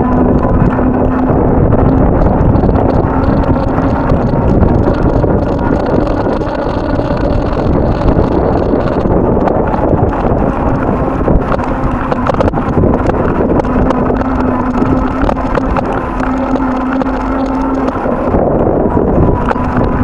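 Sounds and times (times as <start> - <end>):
faint steady hum: 0.0 - 20.0
wind buffeting microphone: 0.0 - 20.0.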